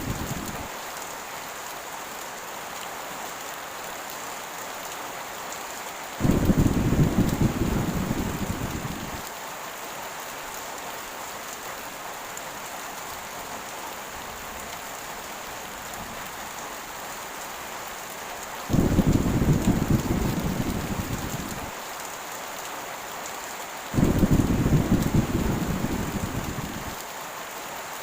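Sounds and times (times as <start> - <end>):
thunder rumbling: 0.0 - 0.7, 6.2 - 9.2, 18.7 - 21.7, 24.0 - 27.0
heavy rain falling: 0.0 - 28.0.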